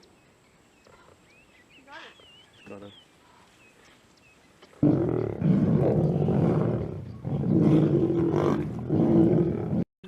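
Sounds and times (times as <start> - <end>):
lions growling: 4.8 - 9.8.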